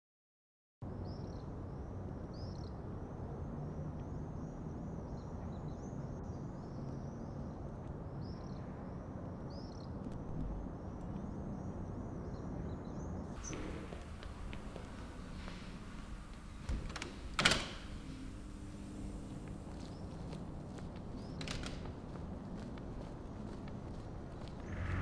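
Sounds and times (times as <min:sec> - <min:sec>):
bird chirping: 0:11.6 - 0:22.2
low rumble: 0:22.8 - 0:25.0.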